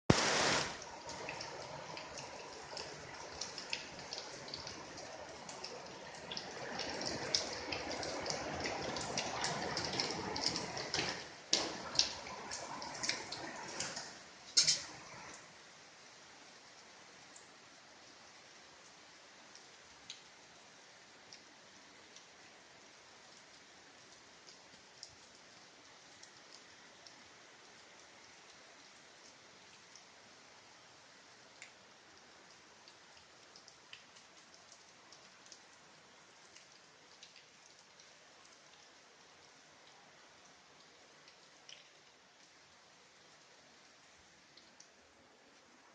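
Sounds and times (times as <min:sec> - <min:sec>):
raindrops ticking: 0:00.1 - 0:15.4, 0:23.2 - 0:30.2, 0:31.5 - 0:45.0
rain hissing: 0:00.1 - 0:15.7.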